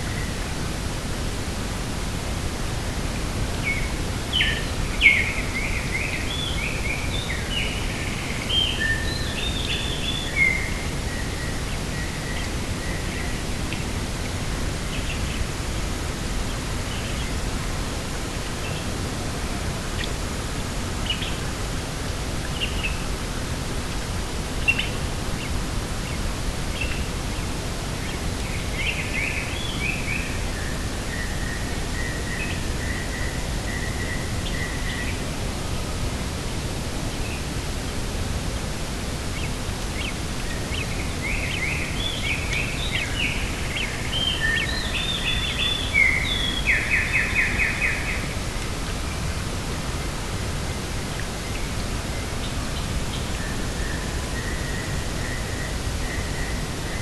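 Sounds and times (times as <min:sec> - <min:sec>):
small birds chirping: 0:39.3 - 0:57.0.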